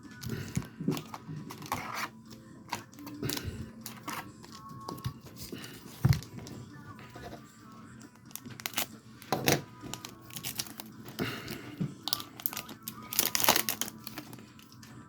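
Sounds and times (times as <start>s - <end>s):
foil wrapper crinkling and tearing: 0.3s - 2.1s, 8.2s - 14.8s.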